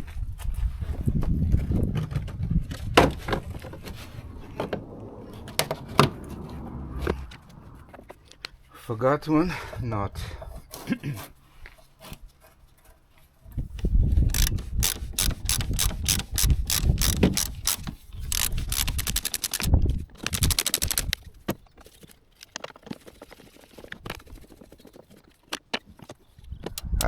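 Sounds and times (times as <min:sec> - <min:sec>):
ratchet wrench clicking: 0:14.3 - 0:19.7.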